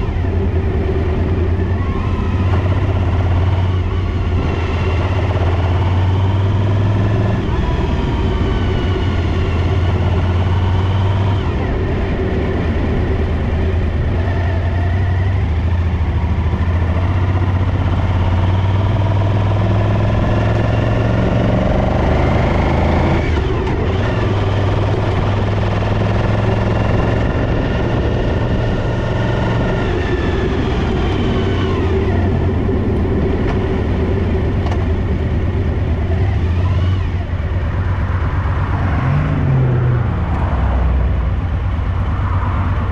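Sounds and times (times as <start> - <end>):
motorcycle engine droning: 0.0 - 42.9.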